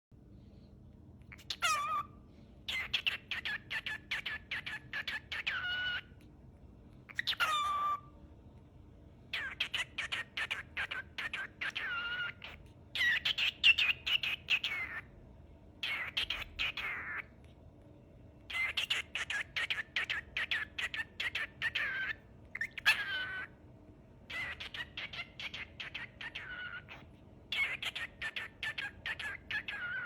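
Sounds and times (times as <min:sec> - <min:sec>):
cockatiel chirping and whistling: 0:01.3 - 0:06.2, 0:07.1 - 0:08.1, 0:09.3 - 0:15.1, 0:15.8 - 0:17.3, 0:18.5 - 0:23.6, 0:24.2 - 0:30.0.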